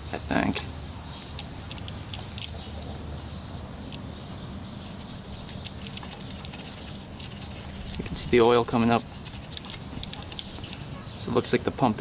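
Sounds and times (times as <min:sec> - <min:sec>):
metallic clicks and ticks: 0:01.2 - 0:02.6, 0:03.9 - 0:04.1, 0:05.3 - 0:10.9.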